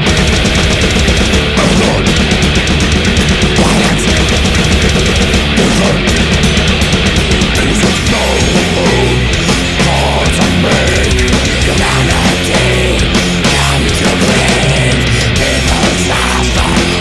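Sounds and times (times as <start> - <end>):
metal band playing: 0.0 - 17.0.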